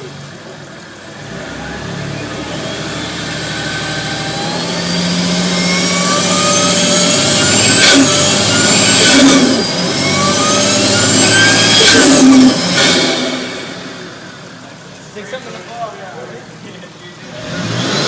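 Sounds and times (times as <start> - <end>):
car engine accelerating: 0.0 - 15.1, 17.2 - 18.0
sharp burst of noise: 1.9 - 14.4.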